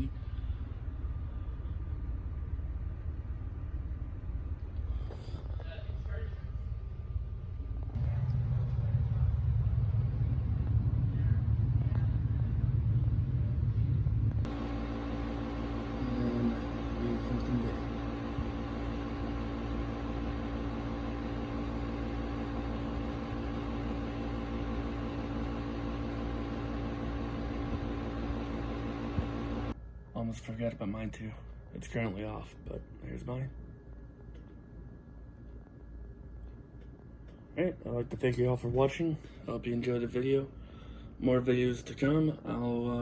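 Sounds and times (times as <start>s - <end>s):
low rumble: 0.0s - 30.5s
air conditioner humming: 0.0s - 43.0s.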